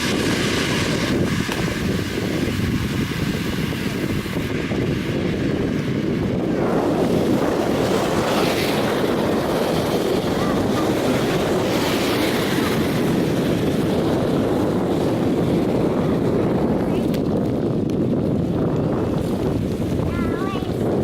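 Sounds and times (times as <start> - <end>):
wind rushing on microphone: 0.0 - 21.0.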